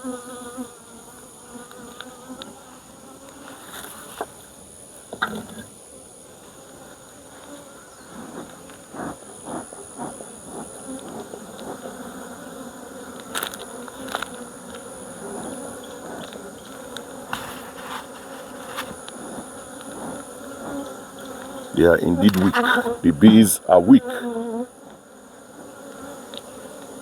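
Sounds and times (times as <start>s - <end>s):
honeybees buzzing: 0.0s - 27.0s.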